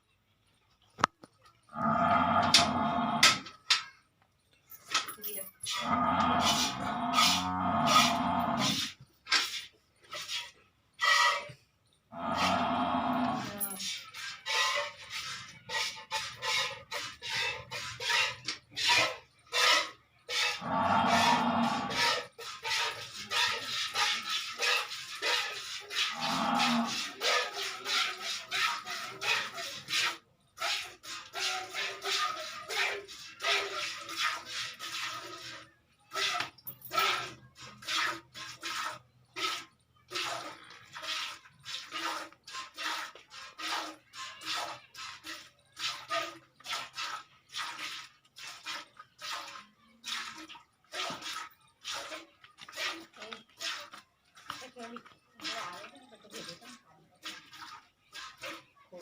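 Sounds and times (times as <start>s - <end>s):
milk squirting into pail: 0.8s - 3.6s, 5.7s - 58.8s
cow mooing: 1.7s - 3.4s, 5.8s - 8.8s, 12.1s - 13.8s, 20.6s - 22.0s, 26.1s - 27.0s.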